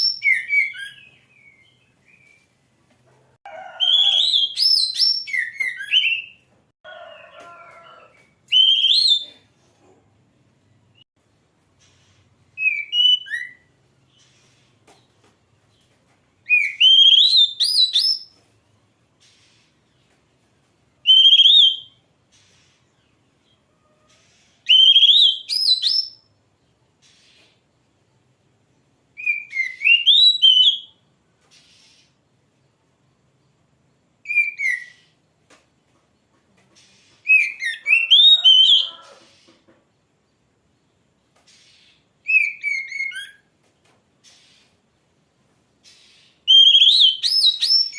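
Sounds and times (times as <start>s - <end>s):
bird whistled song: 0.0s - 2.5s, 3.8s - 6.5s, 8.4s - 9.3s, 12.6s - 14.4s, 16.4s - 18.4s, 21.0s - 22.0s, 24.6s - 26.3s, 29.2s - 31.0s, 34.2s - 35.2s, 37.2s - 39.2s, 41.5s - 43.5s, 45.9s - 47.9s.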